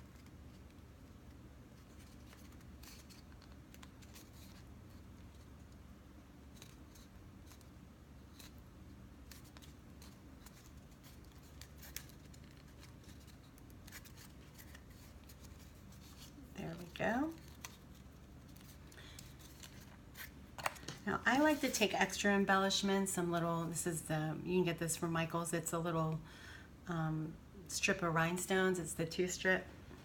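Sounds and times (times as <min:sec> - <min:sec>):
low steady hum: 0:00.0 - 0:30.0
paper clicks and rustles: 0:01.8 - 0:05.8, 0:09.2 - 0:21.7.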